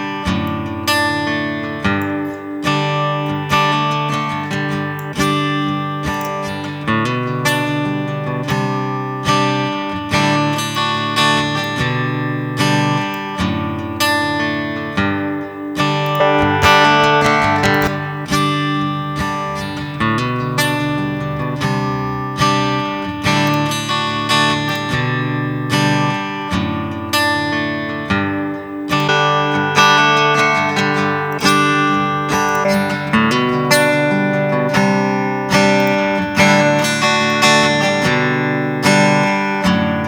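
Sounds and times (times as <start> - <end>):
acoustic guitar chords: 16.1 - 22.3, 27.7 - 40.0.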